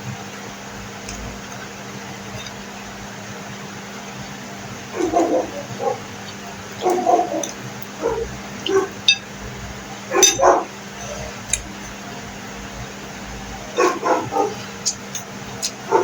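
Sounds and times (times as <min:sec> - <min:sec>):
dog barking: 0:04.9 - 0:06.1, 0:06.8 - 0:09.2, 0:10.1 - 0:10.8, 0:13.8 - 0:14.7.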